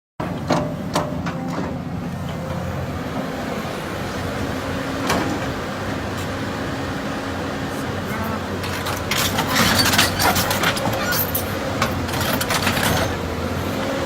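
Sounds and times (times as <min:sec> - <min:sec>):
excavator diesel engine running: 0:00.2 - 0:14.0
sharp metallic clanks: 0:08.2 - 0:13.2.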